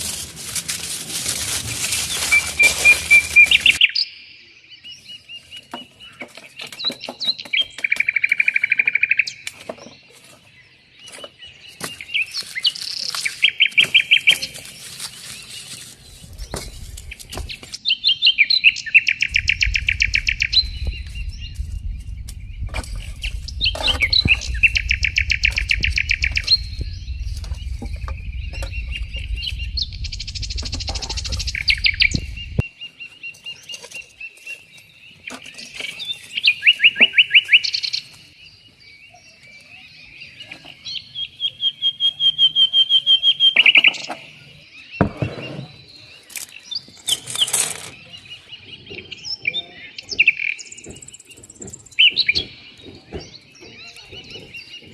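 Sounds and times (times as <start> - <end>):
songbirds trilling: 0.0 - 54.9
low rumble: 19.2 - 32.7.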